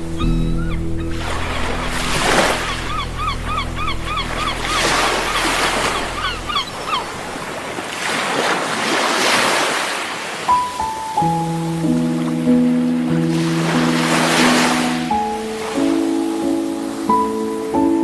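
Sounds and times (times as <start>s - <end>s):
soft held music chord: 0.0s - 6.9s
short chirping calls: 0.0s - 7.4s
sea waves washing: 0.0s - 18.0s.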